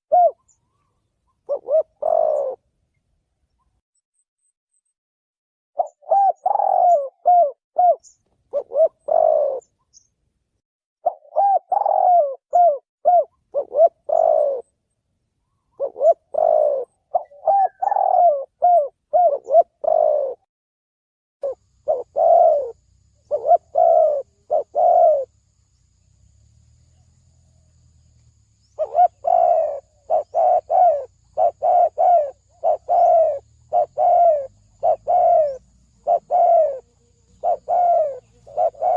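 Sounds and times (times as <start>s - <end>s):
dove cooing: 0.1s - 2.7s, 5.8s - 9.8s, 11.0s - 14.7s, 15.7s - 20.5s, 21.4s - 25.4s, 28.7s - 38.9s.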